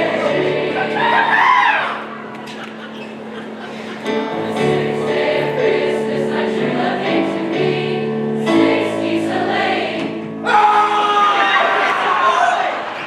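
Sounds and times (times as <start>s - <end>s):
choir singing chords: 0.0s - 13.0s
audience cheering: 10.5s - 13.0s.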